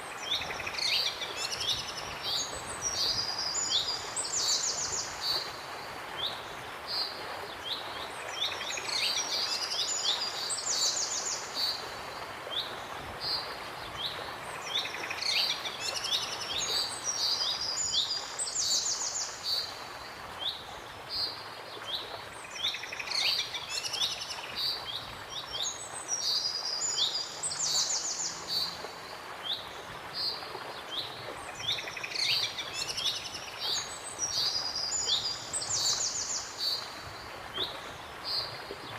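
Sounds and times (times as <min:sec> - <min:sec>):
background hiss: 0:00.0 - 0:38.9.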